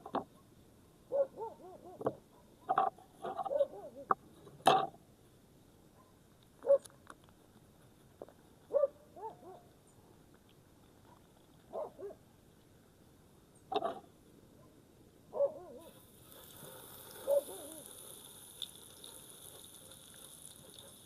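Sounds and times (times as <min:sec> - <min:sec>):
animal yelping: 0:03.3 - 0:04.1, 0:15.4 - 0:16.0, 0:17.2 - 0:18.0.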